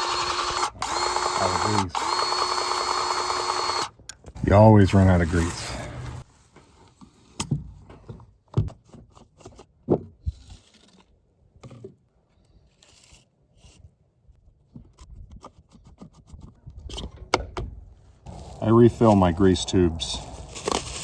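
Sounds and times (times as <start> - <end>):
clicks and scrapes of parts: 14.7 - 17.4, 20.4 - 21.0.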